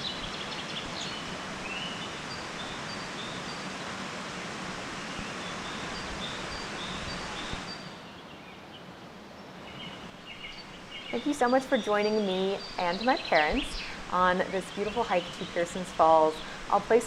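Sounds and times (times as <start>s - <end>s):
waterfall rushing: 0.0s - 7.8s
bird chirping: 9.4s - 16.8s.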